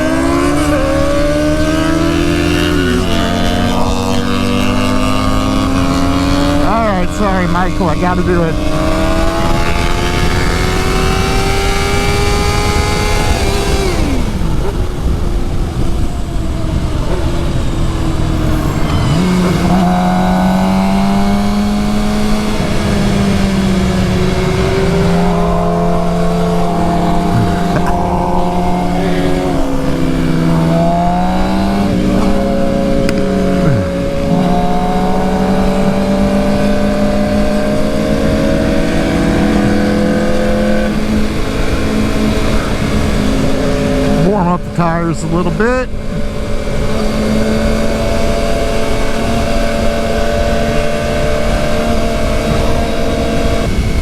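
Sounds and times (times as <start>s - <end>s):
motorcycle engine through gears: 17.1s - 44.2s.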